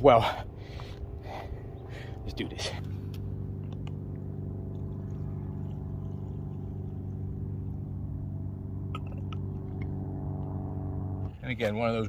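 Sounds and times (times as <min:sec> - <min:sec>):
nitro engine idling: 0:00.0 - 0:12.0.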